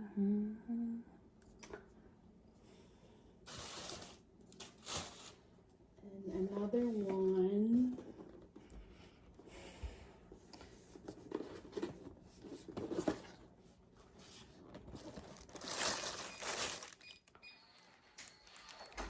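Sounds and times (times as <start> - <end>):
packaging rustling and crinkling: 3.5 - 5.4, 14.2 - 17.2.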